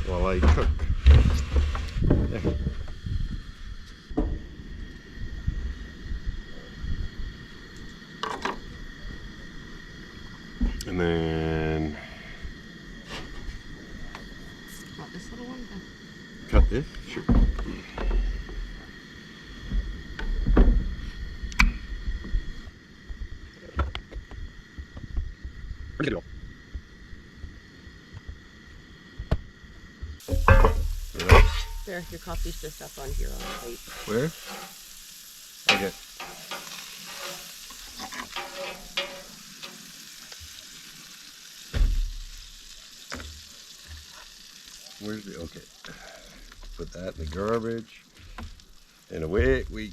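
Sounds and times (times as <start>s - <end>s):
wind rumbling on microphone: 0.0s - 8.0s, 19.5s - 33.9s
camp stove hissing: 0.0s - 49.9s
cookware clinking and knocking: 30.3s - 31.8s, 38.2s - 39.4s.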